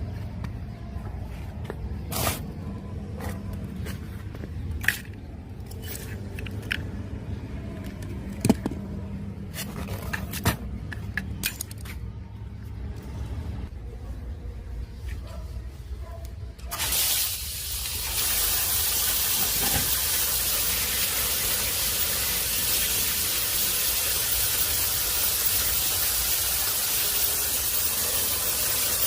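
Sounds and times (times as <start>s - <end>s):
tools scraping and clicking on parts: 3.1s - 12.2s.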